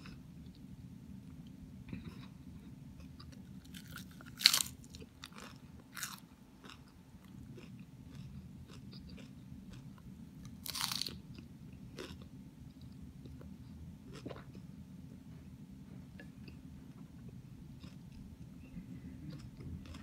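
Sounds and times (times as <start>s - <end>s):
steady low hum: 0.0s - 20.0s
lettuce crunching while chewed: 3.1s - 13.4s.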